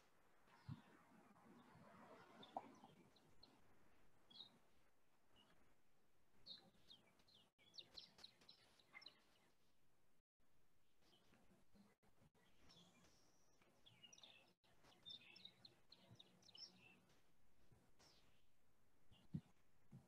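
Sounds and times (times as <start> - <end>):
faint high bird chirps: 0.5 - 3.6, 6.4 - 9.6, 11.0 - 17.1.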